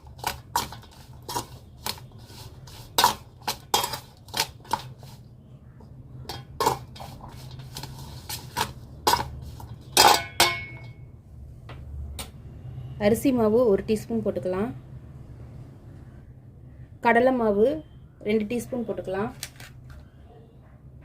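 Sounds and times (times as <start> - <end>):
spoon scraping a bowl: 0.0 - 5.3, 6.2 - 10.9.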